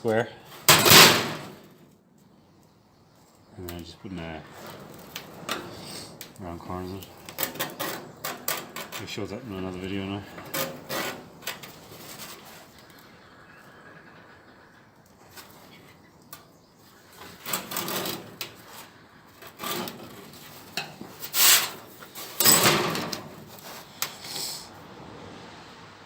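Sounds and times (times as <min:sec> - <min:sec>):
sheet metal scraping: 0:00.5 - 0:01.7, 0:04.4 - 0:13.1, 0:16.9 - 0:24.7.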